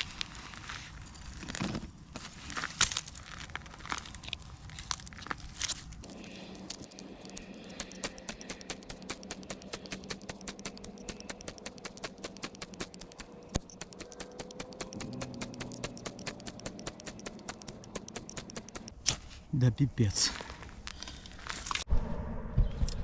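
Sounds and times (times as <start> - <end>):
fire striker clicks: 6.0 - 18.9.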